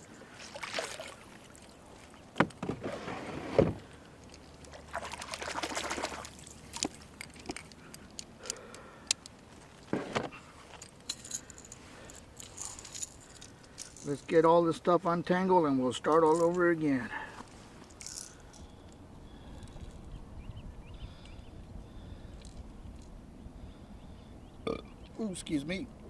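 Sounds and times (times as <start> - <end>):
fishing tackle clinking and rattling: 6.3 - 9.5, 10.6 - 14.4, 16.0 - 16.7, 17.8 - 19.0, 19.6 - 20.1.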